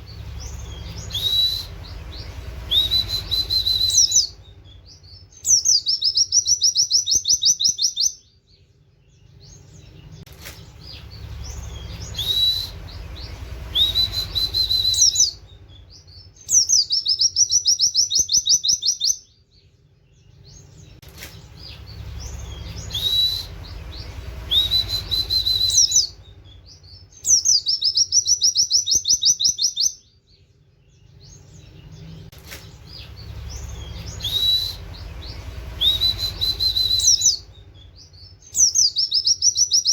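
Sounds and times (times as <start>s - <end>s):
low hum: 0.0s - 5.4s, 9.2s - 16.4s, 20.2s - 27.2s, 31.0s - 38.6s
bird singing high repeated notes: 0.0s - 39.9s
rising whistled note: 0.8s - 4.4s, 11.9s - 15.4s, 22.6s - 26.2s, 33.8s - 37.5s.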